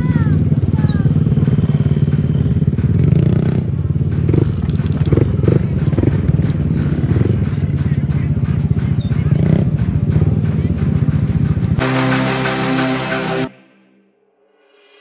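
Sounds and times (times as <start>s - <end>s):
motorcycle engine putter: 4.3s - 6.1s.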